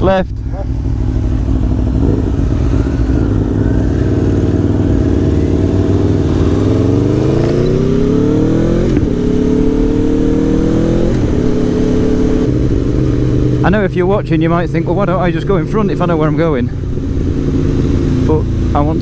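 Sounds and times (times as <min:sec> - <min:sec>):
gear upshift: 0:00.0 - 0:19.0
motorcycle engine accelerating: 0:00.0 - 0:19.0
wind rush: 0:16.5 - 0:18.6.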